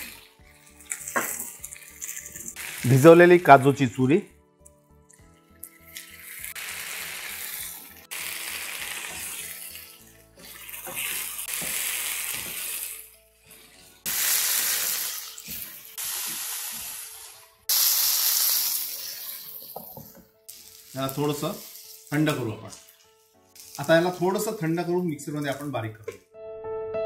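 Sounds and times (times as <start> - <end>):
faint background music: 0.0 - 27.0
vegetables sizzling in a frying pan: 0.8 - 3.4, 6.0 - 13.1, 14.0 - 24.7.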